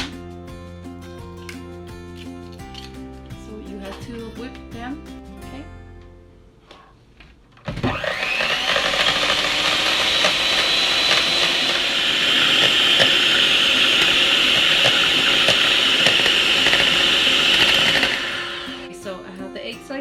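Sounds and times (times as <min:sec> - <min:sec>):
electric mixer whipping eggs: 0:07.7 - 0:18.9.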